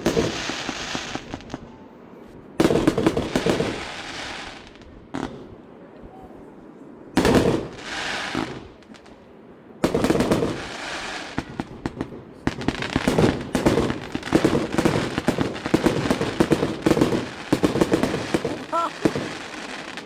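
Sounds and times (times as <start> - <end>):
crackling firework bangs: 0.0 - 1.7, 2.6 - 5.6, 7.2 - 9.2, 9.8 - 20.0
fireworks bursts: 0.0 - 5.6, 7.2 - 9.2, 9.8 - 20.0.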